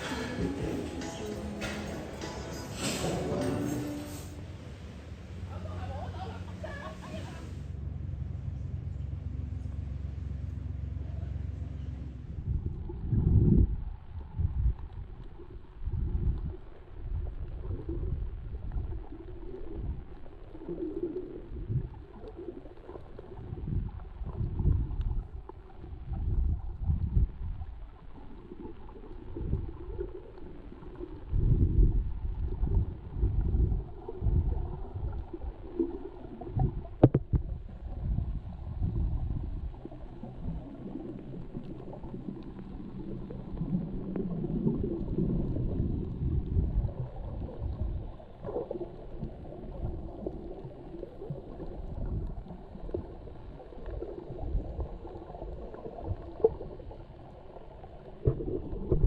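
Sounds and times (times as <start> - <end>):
muffled rumbling and gurgling seawater: 0.0 - 1.0, 3.0 - 59.0
faint steady hum: 0.0 - 59.0.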